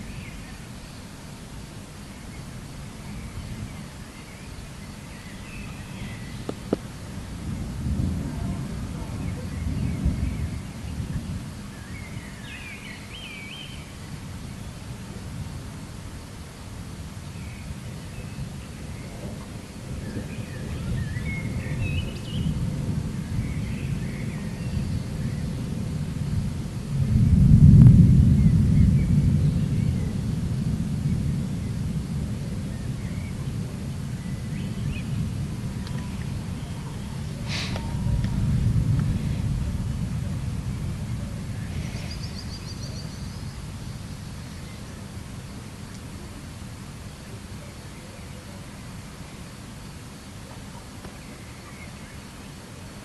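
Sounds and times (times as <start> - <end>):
steady low rumble: 18.4 - 46.8
birds chirping faintly: 39.8 - 53.0
birds chirping: 41.0 - 46.2.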